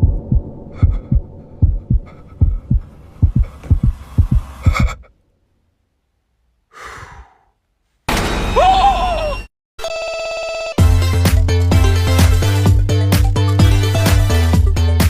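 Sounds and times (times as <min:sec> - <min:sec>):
heartbeat thumps: 0:00.0 - 0:05.1
breathy gasp: 0:06.7 - 0:07.6.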